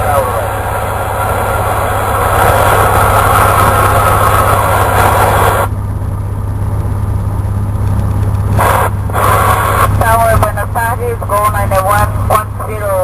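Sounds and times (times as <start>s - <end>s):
airplane engine and propeller: 0.0s - 13.0s.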